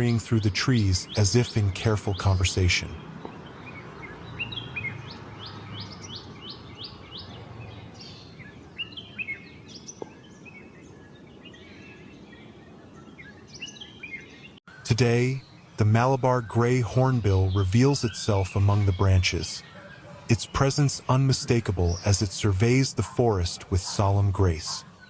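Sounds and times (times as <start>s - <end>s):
bird chirping: 0.0s - 25.0s
steady background hiss: 20.3s - 25.0s.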